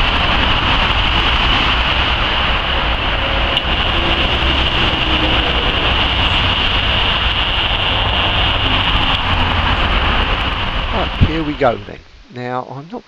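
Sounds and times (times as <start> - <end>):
low rumble: 0.0 - 12.1
high hiss: 0.0 - 12.2.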